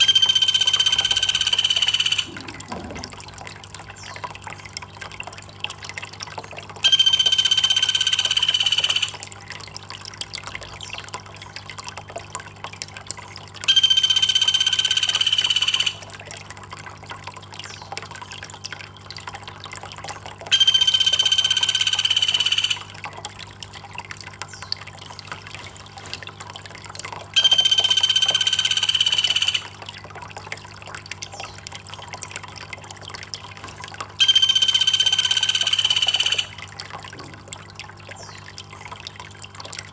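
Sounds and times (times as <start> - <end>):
high steady bird call: 0.0 - 3.2, 6.8 - 9.2, 13.7 - 16.1, 20.5 - 23.0, 27.4 - 29.8, 33.7 - 36.7
water trickling: 0.0 - 39.9.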